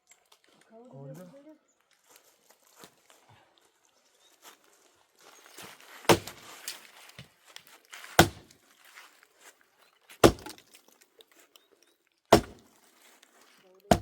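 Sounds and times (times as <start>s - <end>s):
rustling and handling noise: 0.0s - 14.0s
heavy blows on wood: 10.2s - 10.6s, 12.3s - 12.6s.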